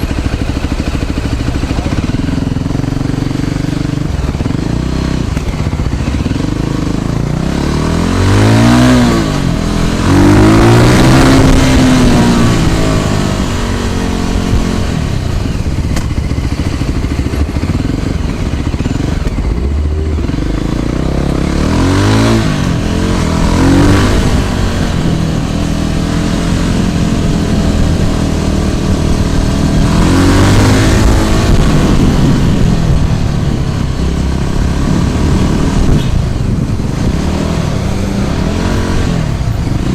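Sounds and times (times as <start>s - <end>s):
road and engine noise: 0.0s - 39.9s
vehicles passing by: 0.0s - 39.9s.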